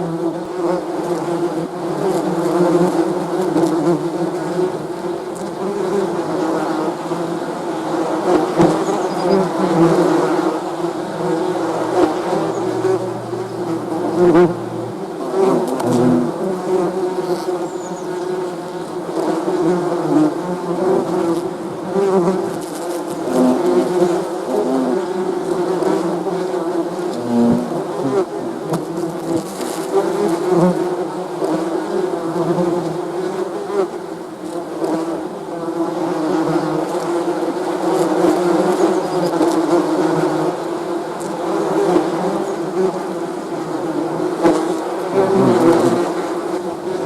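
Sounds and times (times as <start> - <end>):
bees buzzing: 0.1 - 30.7, 36.3 - 47.0
lower-pitched buzz: 9.0 - 16.4.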